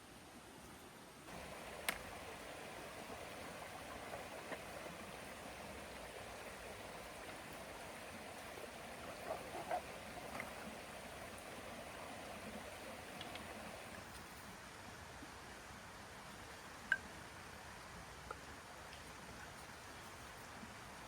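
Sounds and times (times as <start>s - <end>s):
river flowing: 1.3s - 14.9s.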